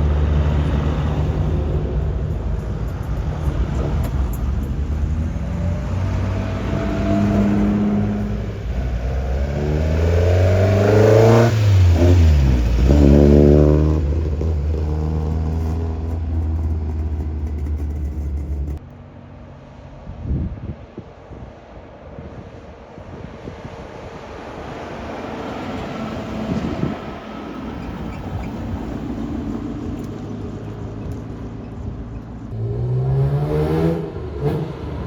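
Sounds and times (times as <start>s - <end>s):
car engine passing close: 0.0s - 21.3s, 22.2s - 35.0s
steady low engine note: 0.0s - 23.2s.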